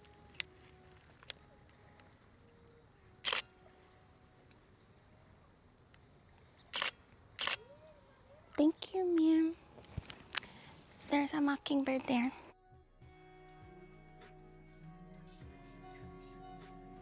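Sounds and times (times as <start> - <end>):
faint high-pitched pulsing tone: 0.0 - 9.8
camera shutter clicks: 3.2 - 3.6, 6.7 - 7.7.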